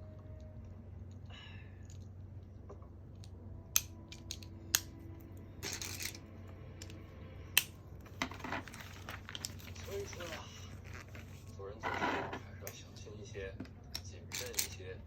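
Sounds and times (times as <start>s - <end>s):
low hum: 0.0s - 15.0s
plastic pieces rattling: 5.6s - 6.2s, 8.2s - 11.0s, 14.3s - 14.8s.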